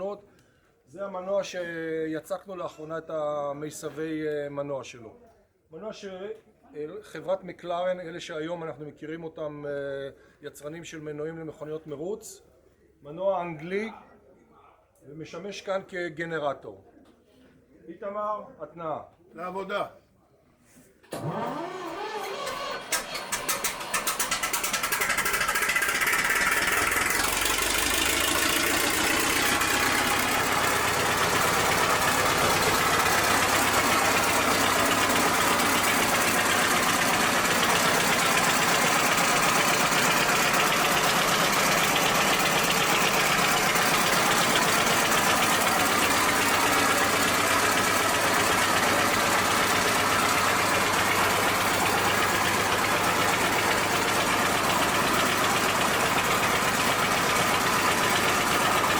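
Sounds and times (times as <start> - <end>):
stationary engine running: 21.2 - 58.9.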